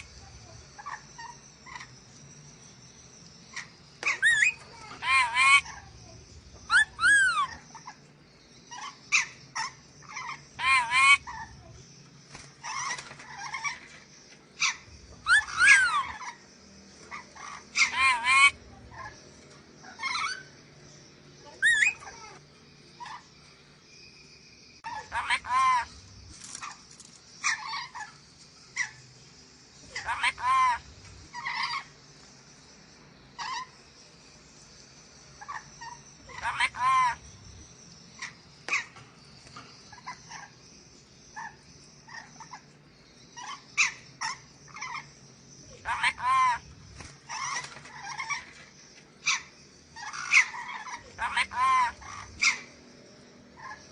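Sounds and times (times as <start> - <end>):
parrot calling: 3.5 - 5.9, 6.6 - 8.1, 8.7 - 11.7, 14.6 - 16.4, 17.1 - 19.2, 19.8 - 20.5, 21.4 - 22.4, 24.8 - 26.8, 27.4 - 29.0, 29.8 - 31.9, 33.4 - 33.8, 35.4 - 37.4, 39.9 - 40.6, 41.3 - 48.6, 49.2 - 52.8, 53.6 - 53.9
parrot screeches: 30.0 - 31.9, 45.8 - 46.6, 49.3 - 52.7.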